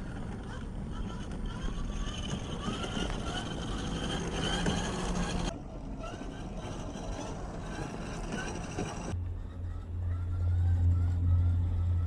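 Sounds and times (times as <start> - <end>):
electric motor whines: 0.0 - 9.2
rough outdoor noise: 0.0 - 12.0.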